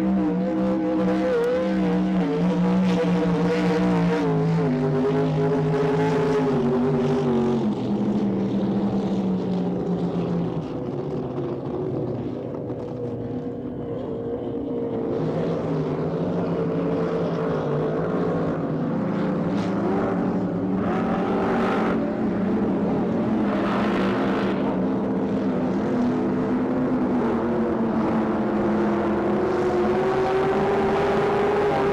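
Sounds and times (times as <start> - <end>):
powerboat engines droning: 0.0 - 31.9.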